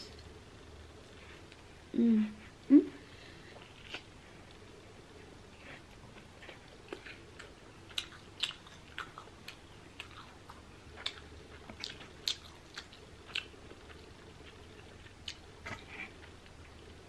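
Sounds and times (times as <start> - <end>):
person chewing food: 3.5 - 4.6, 5.3 - 17.0.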